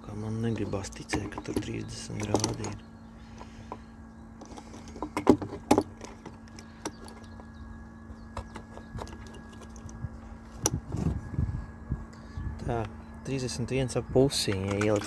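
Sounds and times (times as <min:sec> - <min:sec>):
steady low hum: 0:00.0 - 0:15.0
probe and cable clicking and knocking: 0:14.4 - 0:15.0.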